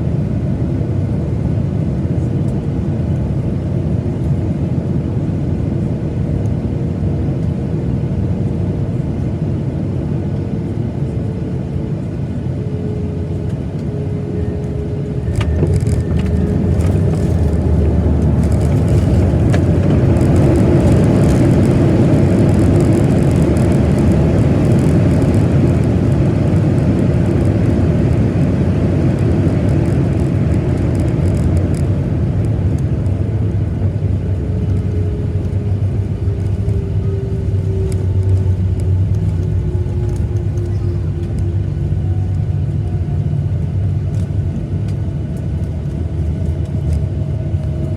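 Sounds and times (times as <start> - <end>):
cabin rumble and rushing noise: 0.0 - 47.9
jet engines whining: 6.0 - 47.9
airplane landing jolt: 14.7 - 26.3.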